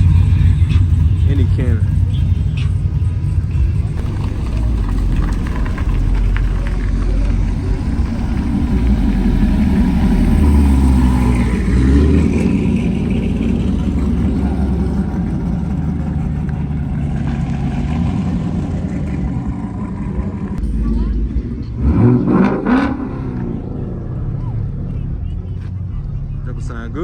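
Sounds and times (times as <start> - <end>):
car engines and exhaust rumbling: 0.0 - 27.0.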